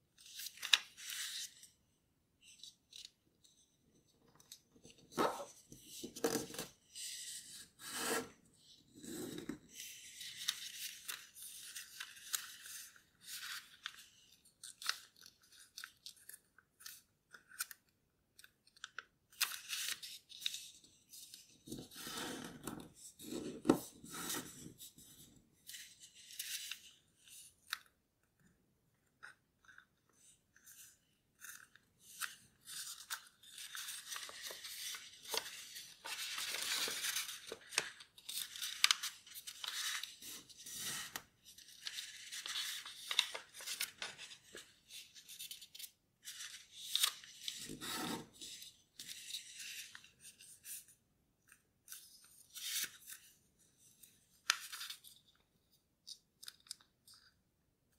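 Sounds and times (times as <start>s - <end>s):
paper rustling and crinkling: 31.4s - 50.8s.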